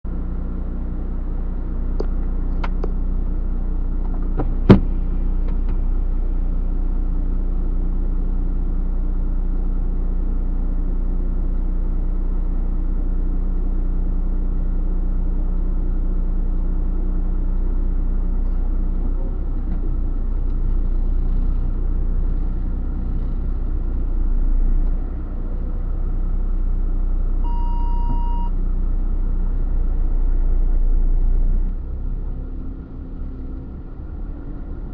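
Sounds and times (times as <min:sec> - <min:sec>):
truck engine rumbling: 0:00.1 - 0:08.8, 0:16.8 - 0:34.9
short beep: 0:27.4 - 0:28.6.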